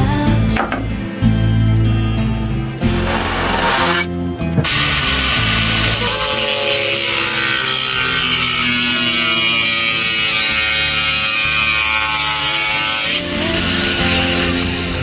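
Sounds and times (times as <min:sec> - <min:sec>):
power tool working metal: 0:02.8 - 0:15.0.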